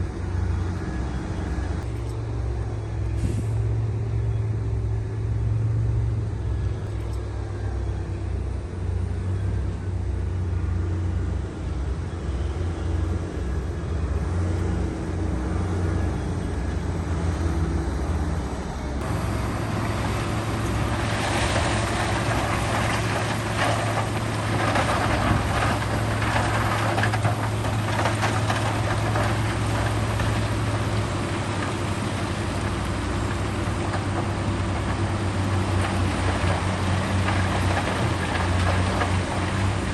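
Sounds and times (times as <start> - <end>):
diesel engine humming: 0.0 - 39.9
rough scraping and clattering: 19.0 - 39.9.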